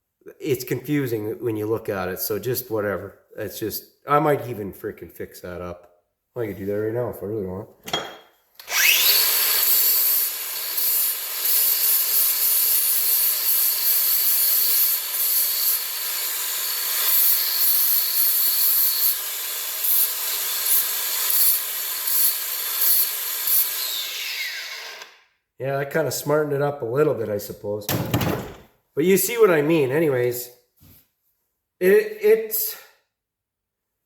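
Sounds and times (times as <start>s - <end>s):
electric grinder grinding steel: 8.6s - 25.2s.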